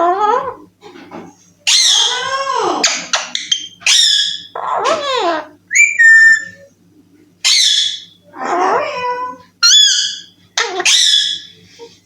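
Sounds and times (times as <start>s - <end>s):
parrot squawking: 1.7s - 6.7s, 7.4s - 11.6s
parrot whistled notes: 5.7s - 6.6s.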